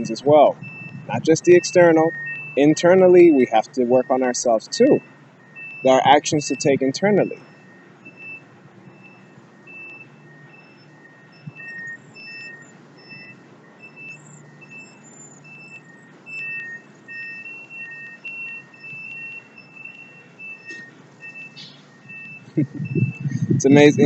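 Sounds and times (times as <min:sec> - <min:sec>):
low steady rumble: 0:00.0 - 0:01.6, 0:22.4 - 0:24.0
reversing alarms beeping: 0:00.0 - 0:24.0.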